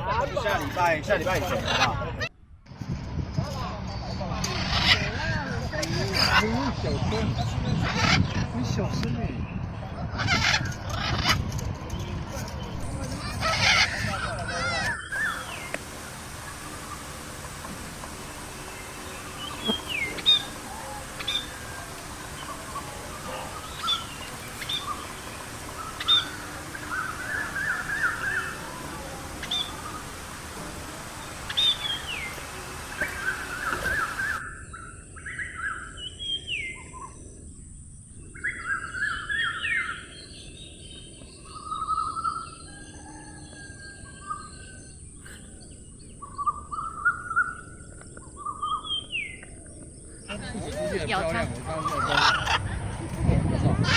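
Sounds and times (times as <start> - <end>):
bird chattering trills: 13.2 - 34.4
background hiss: 15.1 - 34.4.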